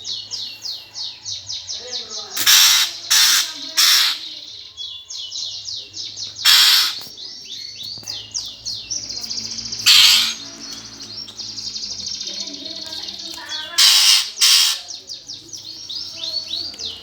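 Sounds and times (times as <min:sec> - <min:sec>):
sparrows chirping: 0:00.0 - 0:17.0
harsh rasping bird call: 0:02.2 - 0:04.5, 0:06.4 - 0:07.2, 0:09.0 - 0:15.1
fast buzzing trill: 0:09.6 - 0:11.2.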